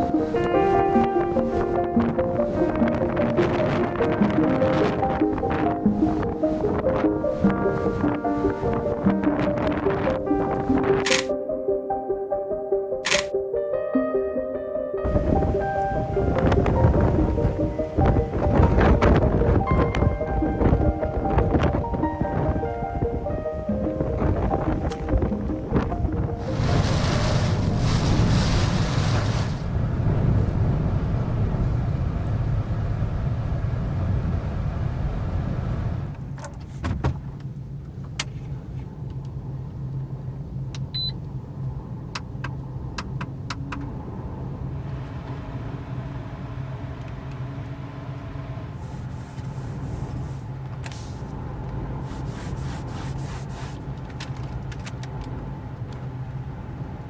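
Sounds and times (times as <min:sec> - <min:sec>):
sharp clicks: 0:11.0 - 0:11.3, 0:13.0 - 0:13.3
car engine humming: 0:15.1 - 0:36.4, 0:42.8 - 0:57.0
loud rushing noise: 0:26.3 - 0:35.1.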